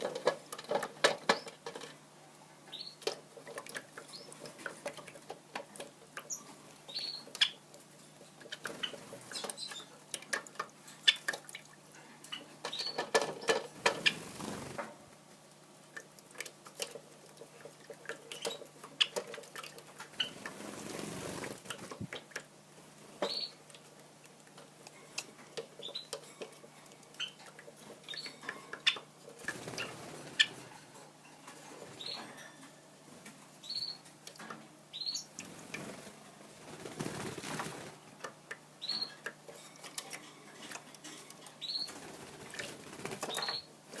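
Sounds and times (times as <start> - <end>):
high bird chirps: 6.3 - 7.6, 23.2 - 23.6, 33.6 - 34.0, 34.9 - 35.3, 38.8 - 39.2, 41.6 - 42.0, 43.3 - 43.7
wings fluttering: 13.1 - 14.9, 20.1 - 22.2, 28.8 - 30.7, 35.4 - 38.1, 41.8 - 44.0.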